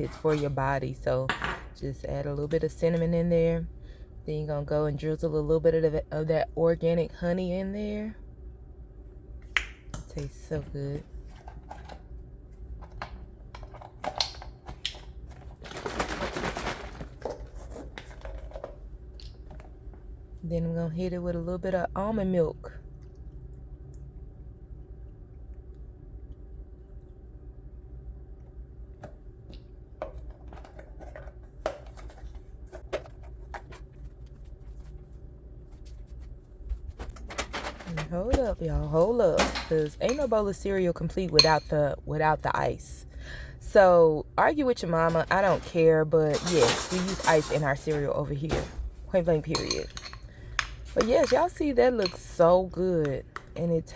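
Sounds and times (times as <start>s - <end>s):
steady low hum: 0.0s - 53.9s
small kitchen clicks and knocks: 1.2s - 1.8s, 12.8s - 19.7s, 37.0s - 40.4s, 45.0s - 48.9s.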